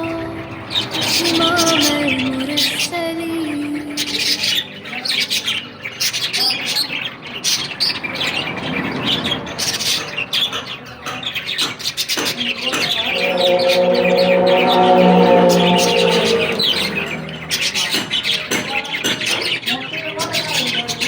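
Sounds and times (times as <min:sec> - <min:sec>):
person singing a held note: 0:13.0 - 0:17.8.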